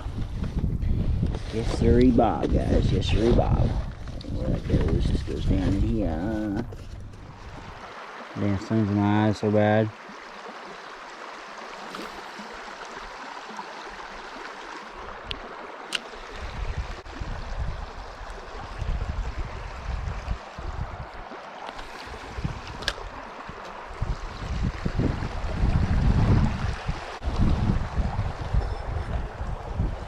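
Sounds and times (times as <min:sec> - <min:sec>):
wind buffeting microphone: 0:00.0 - 0:08.6, 0:16.1 - 0:30.0
river water rushing: 0:07.4 - 0:24.4.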